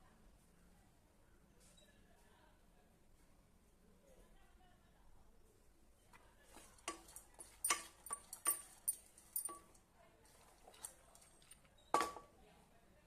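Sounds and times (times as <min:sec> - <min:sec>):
metal utensil clinking on pot: 0:06.5 - 0:12.3.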